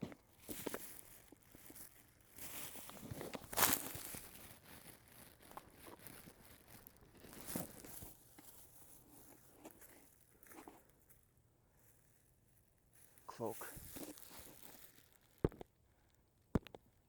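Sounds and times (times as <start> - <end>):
footsteps through undergrowth: 0.3 - 11.2, 12.9 - 15.5.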